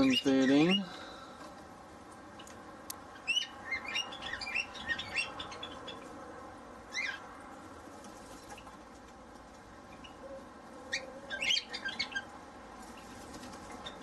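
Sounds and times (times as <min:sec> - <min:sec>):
small birds chirping: 0:00.0 - 0:01.6, 0:02.2 - 0:06.2, 0:06.8 - 0:07.4, 0:09.8 - 0:14.0.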